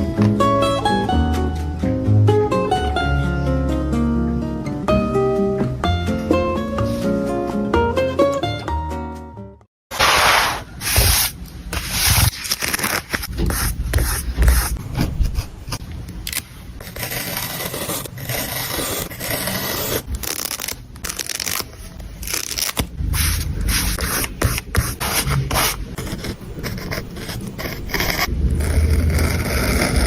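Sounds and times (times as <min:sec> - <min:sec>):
paper scraping and rustling: 0:09.9 - 0:15.4.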